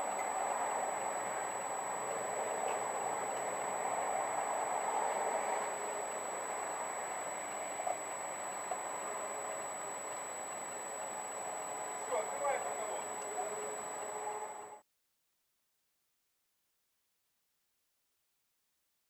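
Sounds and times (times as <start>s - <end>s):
faint ticks: 0.0s - 14.8s.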